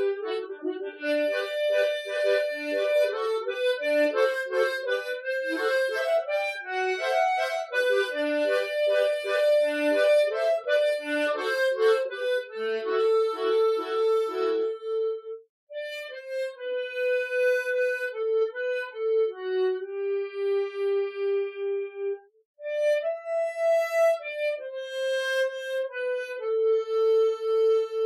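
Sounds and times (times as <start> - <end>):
broken chord accompaniment: 0.0 - 15.3
harmonica ballad melody: 0.0 - 28.0.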